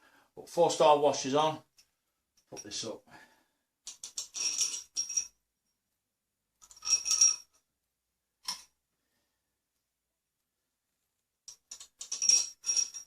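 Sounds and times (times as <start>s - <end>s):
metal washers and bolts jingling: 3.9s - 5.4s, 11.5s - 13.0s.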